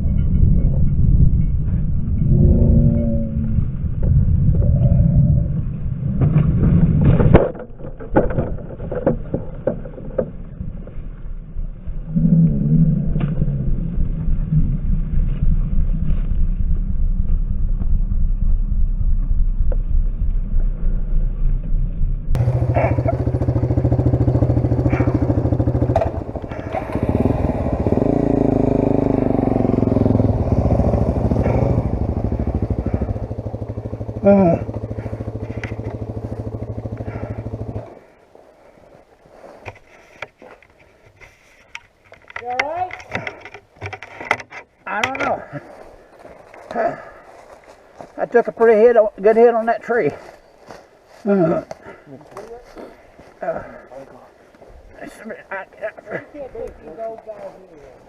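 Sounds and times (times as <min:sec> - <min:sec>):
fuller engine sound: 0:00.1 - 0:38.3
small vehicle engine idling: 0:22.3 - 0:38.5.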